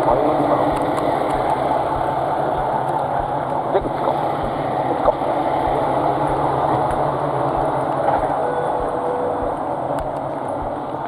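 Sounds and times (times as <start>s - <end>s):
train engine idling: 0.0s - 11.0s.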